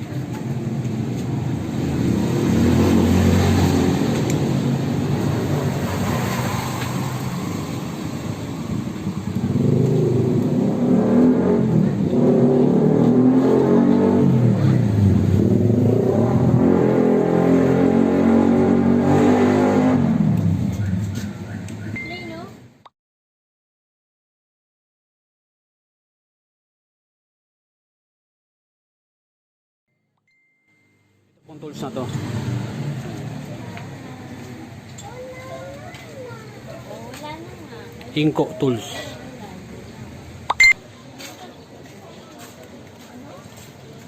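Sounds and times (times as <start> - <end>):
motorcycle engine revving: 0.4 - 21.9, 31.8 - 34.6.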